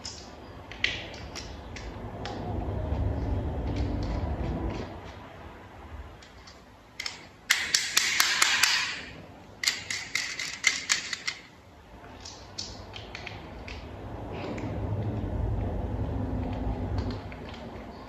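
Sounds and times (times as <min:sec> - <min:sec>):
plastic toy parts clicking: 0:00.0 - 0:02.4, 0:06.2 - 0:13.8.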